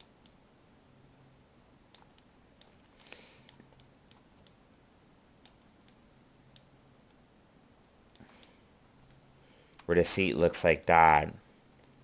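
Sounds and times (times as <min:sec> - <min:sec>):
mouse and keyboard clicks: 0:01.9 - 0:02.8.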